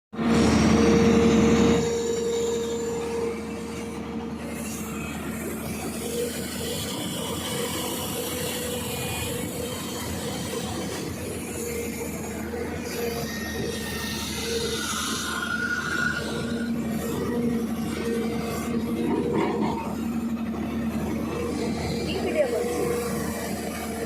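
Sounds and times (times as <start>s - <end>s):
excavator engine and hydraulics whine: 0.1s - 24.0s.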